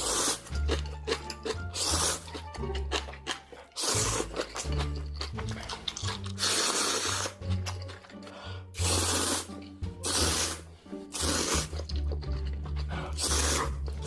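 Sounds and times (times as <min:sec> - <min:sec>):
loud hissing slurps: 0:00.0 - 0:00.6, 0:01.7 - 0:02.4, 0:03.8 - 0:04.6, 0:06.2 - 0:07.5, 0:08.1 - 0:12.0, 0:12.9 - 0:14.0
background music with bass line: 0:04.0 - 0:14.0.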